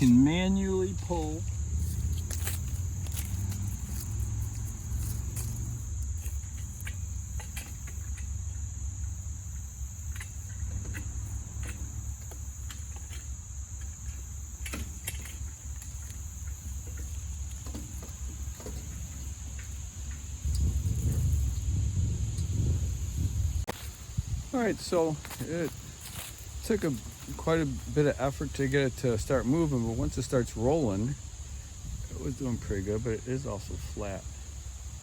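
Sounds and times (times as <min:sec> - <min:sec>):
wood chipper dragged across ground: 0:00.0 - 0:09.4
insects chirring: 0:00.0 - 0:35.0.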